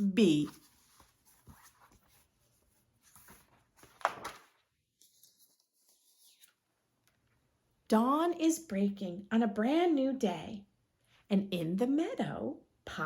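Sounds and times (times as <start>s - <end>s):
paper pages rustling: 0.1s - 7.4s.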